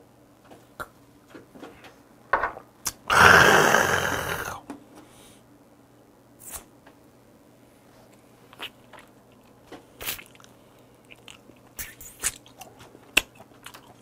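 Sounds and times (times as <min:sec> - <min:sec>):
person chewing with wet mouth sounds: 0:08.5 - 0:14.0.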